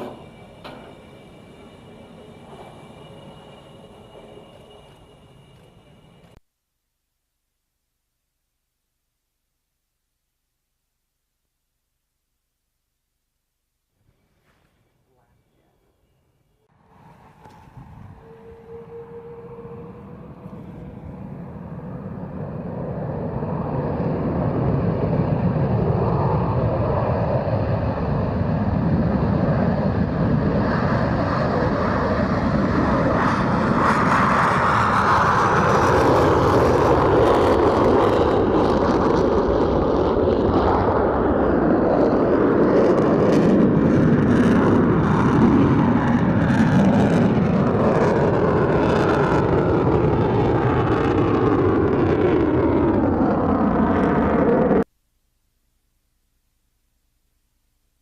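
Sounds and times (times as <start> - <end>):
jet engines rumbling: 0.0 - 6.4, 14.9 - 54.9.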